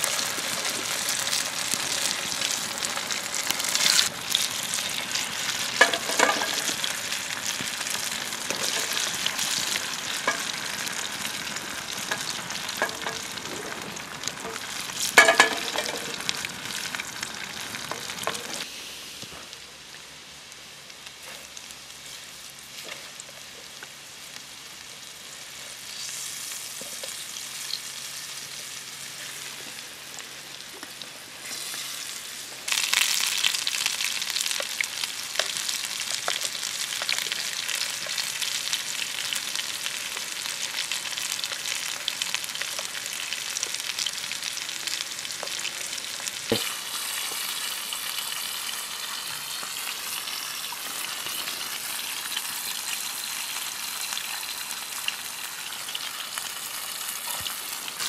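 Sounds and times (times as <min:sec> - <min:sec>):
chips sizzling in hot oil: 0:00.0 - 0:58.0.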